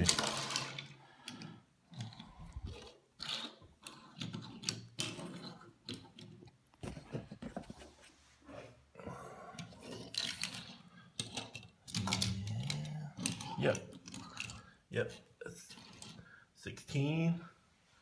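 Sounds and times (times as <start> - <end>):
toy cars clicking on plastic: 0.0 - 6.6, 9.6 - 14.7.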